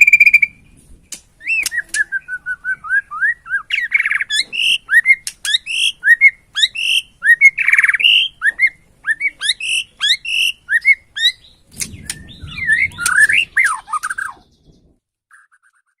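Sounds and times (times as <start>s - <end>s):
bird whistling song: 0.0s - 0.8s, 1.4s - 16.0s
low rumble: 11.5s - 15.0s
bird harsh buzzy rattles: 11.7s - 14.2s.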